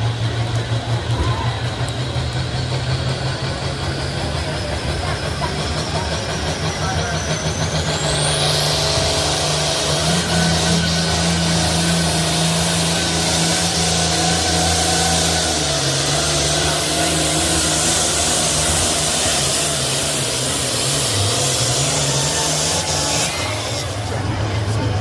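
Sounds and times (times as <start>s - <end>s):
engine running at high revs: 0.0s - 25.0s.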